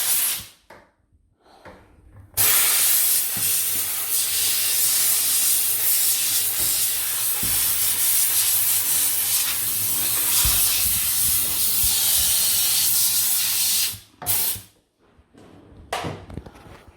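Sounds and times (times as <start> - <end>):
steam cleaner hissing: 0.0 - 0.6, 2.4 - 14.7.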